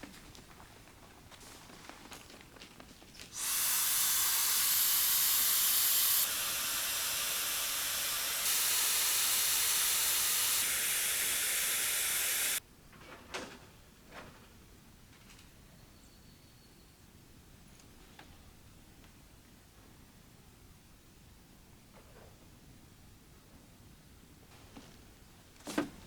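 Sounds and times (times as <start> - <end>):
loud steady hiss: 3.4 - 12.6.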